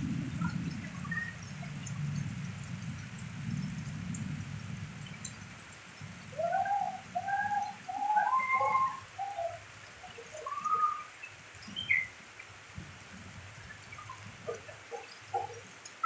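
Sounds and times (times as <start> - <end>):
bird cooing: 6.3 - 11.1, 14.5 - 15.6
higher bird calls: 6.3 - 12.1.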